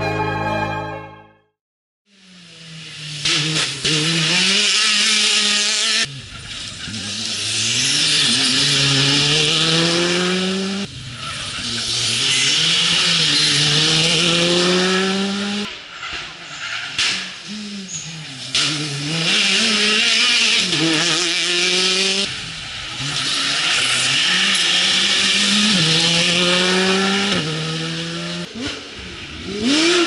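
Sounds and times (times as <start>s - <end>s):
rally car engine accelerating: 2.2s - 15.7s, 17.0s - 30.0s.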